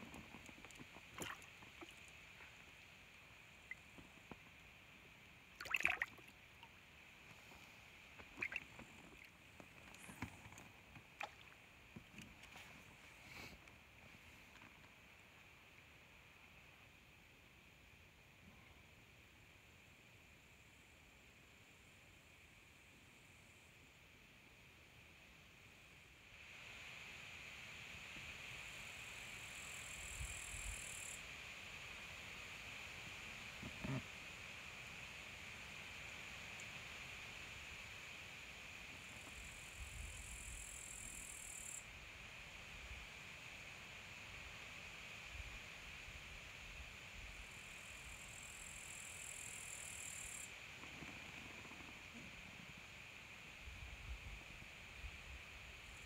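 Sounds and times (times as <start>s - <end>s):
faint steady high hiss: 0.0s - 56.0s
waves lapping against boat hull: 0.2s - 2.5s, 5.6s - 6.4s, 8.2s - 12.6s
splashes and knocks: 0.7s - 2.0s, 5.6s - 6.3s, 8.2s - 9.3s.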